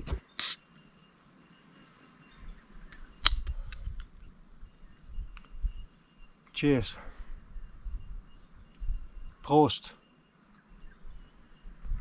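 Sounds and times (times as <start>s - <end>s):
sharp clicks: 2.9s - 3.9s.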